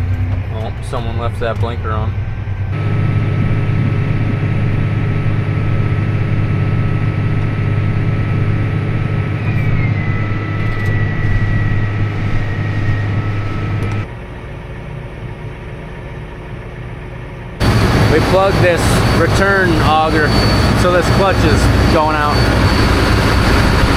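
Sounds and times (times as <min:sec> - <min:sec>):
combine harvester hum: 0:00.0 - 0:23.9
high whine sliding down: 0:01.9 - 0:14.1, 0:17.6 - 0:23.9.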